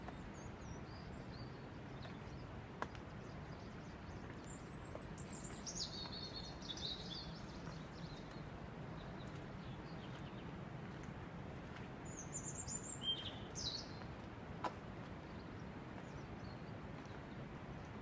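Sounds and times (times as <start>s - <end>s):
birds chirping: 0.0s - 10.6s, 12.0s - 14.1s
steady low background noise: 0.0s - 18.0s.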